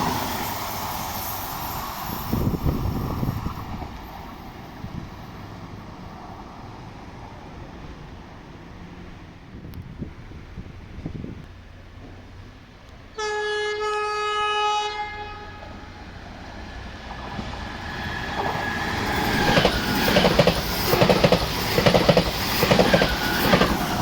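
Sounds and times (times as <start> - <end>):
train rumbling past: 0.0 - 24.0
train horn: 13.1 - 16.2.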